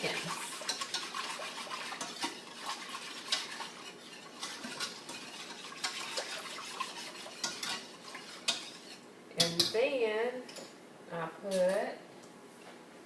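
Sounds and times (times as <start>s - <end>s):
spoon scraping a pot: 0.0s - 9.8s.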